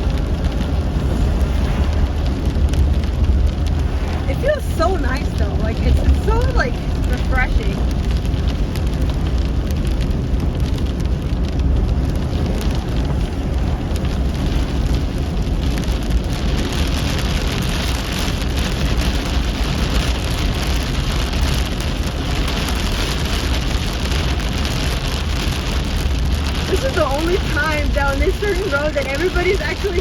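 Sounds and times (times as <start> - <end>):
heavy rain on a car: 0.0 - 30.0
road and engine rumble: 0.0 - 30.0.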